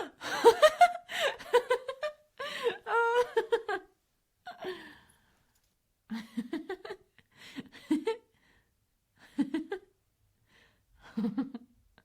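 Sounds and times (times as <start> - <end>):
woman laughing: 0.0 - 3.9.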